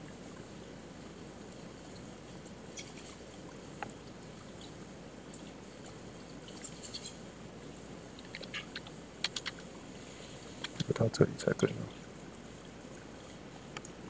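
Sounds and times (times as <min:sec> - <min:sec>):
microphone hiss: 0:00.0 - 0:14.0
mouse and keyboard clicks: 0:08.2 - 0:09.6, 0:10.6 - 0:10.9.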